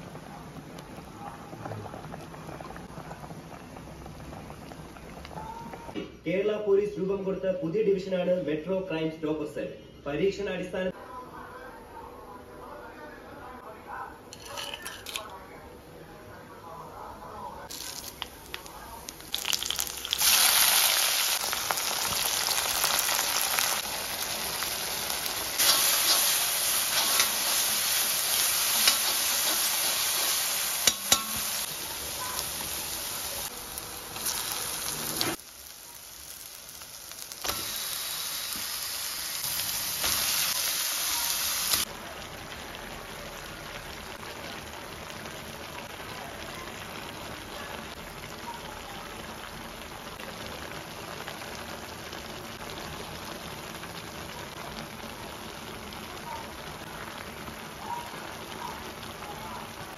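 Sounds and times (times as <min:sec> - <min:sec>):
food sizzling in hot oil: 0:17.7 - 0:59.9.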